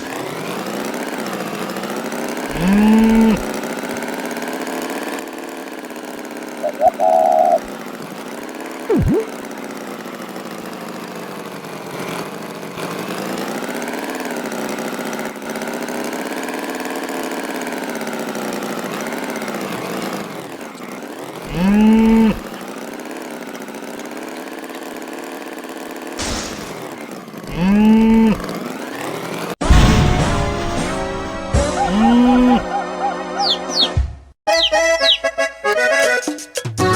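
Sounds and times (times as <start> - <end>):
tractor engine running: 0.0 - 32.6
bull mooing: 2.5 - 3.4, 21.5 - 22.4, 27.5 - 28.4.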